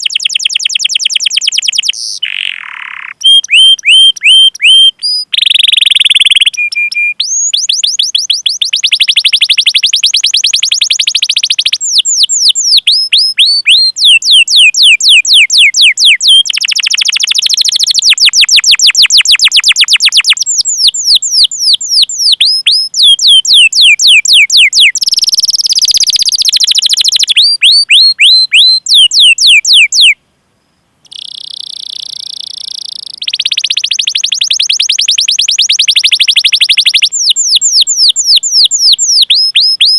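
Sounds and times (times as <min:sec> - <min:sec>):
canary singing trills: 0:00.0 - 0:30.2, 0:31.0 - 0:39.9.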